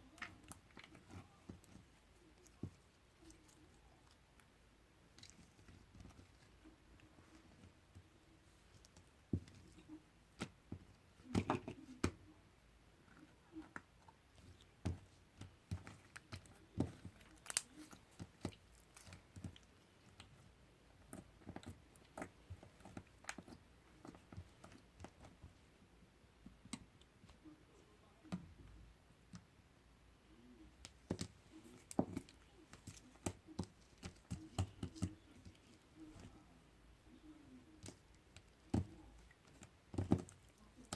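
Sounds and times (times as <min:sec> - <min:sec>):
slime squelching by hand: 0:13.3 - 0:25.4.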